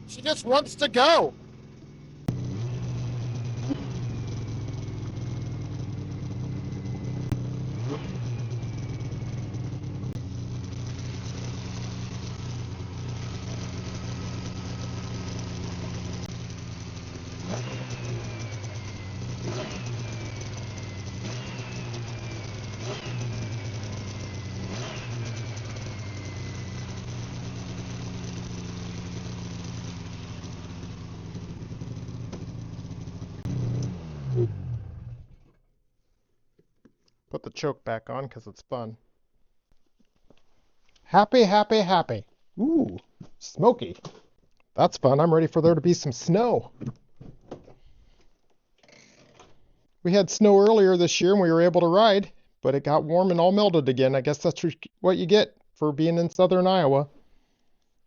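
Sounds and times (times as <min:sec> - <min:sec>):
snowmobile engine idling: 0:00.0 - 0:35.6.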